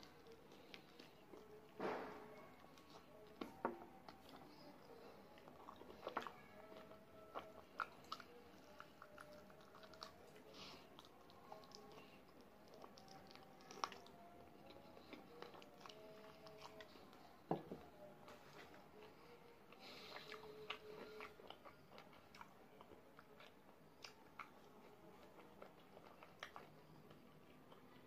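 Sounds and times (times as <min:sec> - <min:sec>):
chewing chicken wings: 0:04.1 - 0:17.4, 0:19.0 - 0:28.0.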